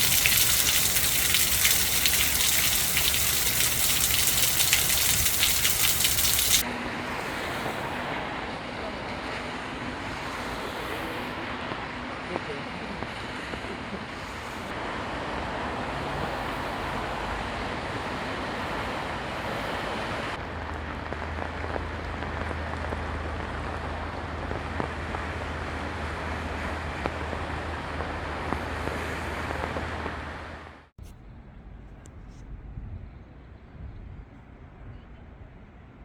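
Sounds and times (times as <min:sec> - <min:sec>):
steady rain falling: 0:00.0 - 0:06.6, 0:20.4 - 0:30.6.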